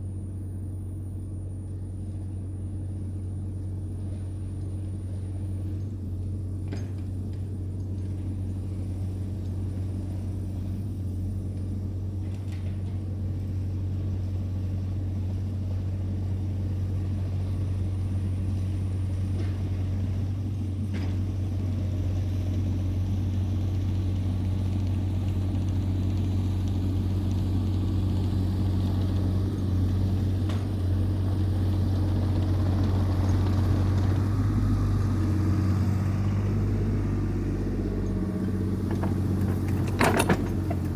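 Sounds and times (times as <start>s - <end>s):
heavy equipment engine humming: 0.0s - 40.9s
faint knocks: 38.2s - 40.9s.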